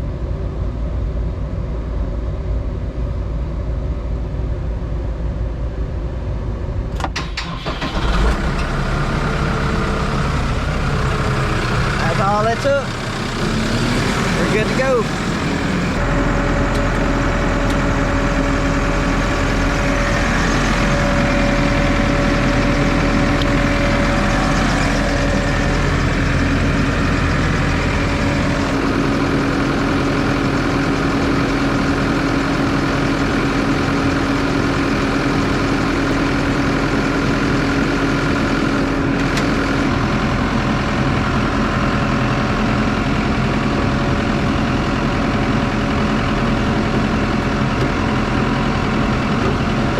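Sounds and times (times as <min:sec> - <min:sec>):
tractor diesel engine idling: 0:07.2 - 0:49.9.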